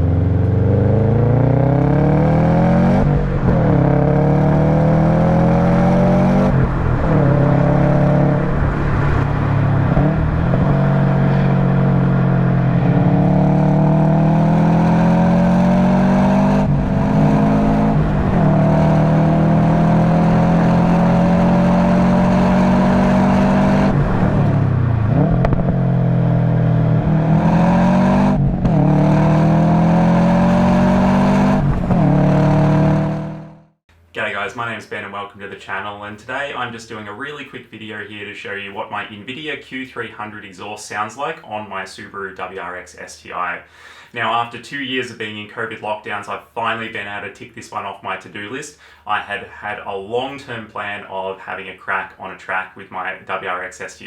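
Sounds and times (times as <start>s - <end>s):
car engine at full throttle: 0.0s - 33.8s.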